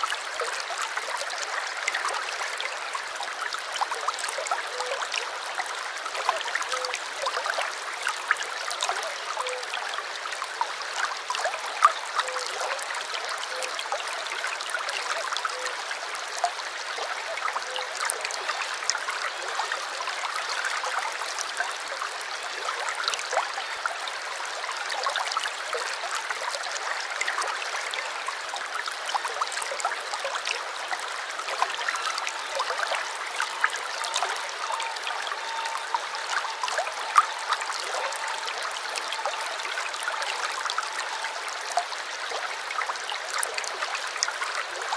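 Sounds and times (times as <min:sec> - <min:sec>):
brook babbling over stones: 0:00.0 - 0:44.9.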